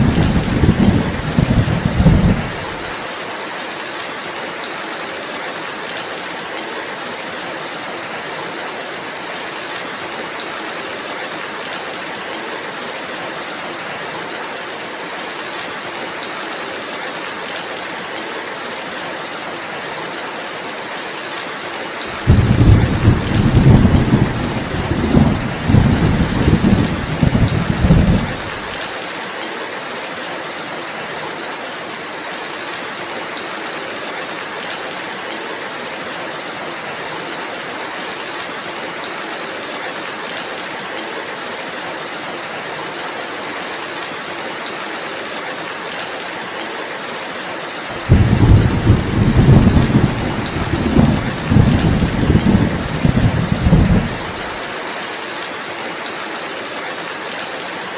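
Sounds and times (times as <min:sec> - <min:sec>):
deep rumble of thunder: 0:00.0 - 0:02.8, 0:22.2 - 0:28.7, 0:48.0 - 0:54.5
steady rainfall: 0:00.0 - 0:57.9.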